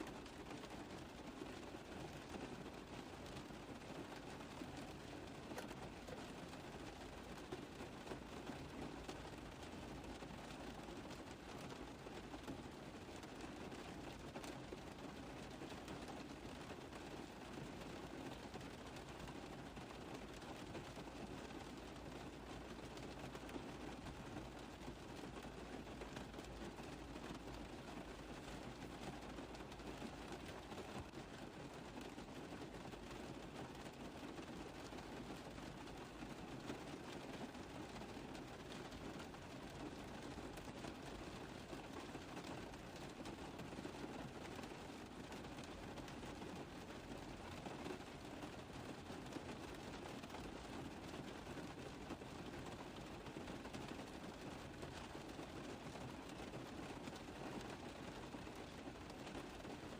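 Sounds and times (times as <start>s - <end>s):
rain pattering on a car roof: 0.0s - 59.9s.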